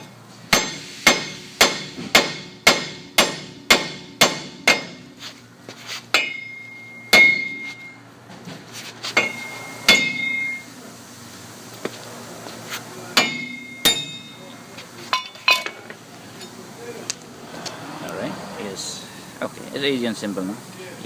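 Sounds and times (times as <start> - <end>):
hammer striking steel: 0.5 - 5.2, 6.1 - 8.0, 9.1 - 10.6, 13.1 - 15.8.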